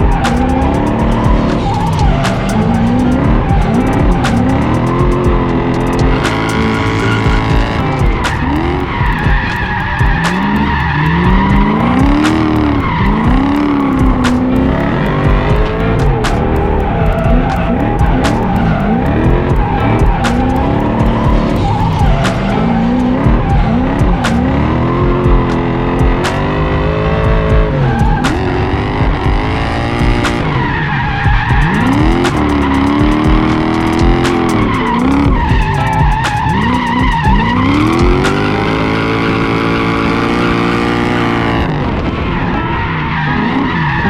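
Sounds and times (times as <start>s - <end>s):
truck engine revving: 0.0s - 44.0s
tyre squeal: 30.2s - 41.6s.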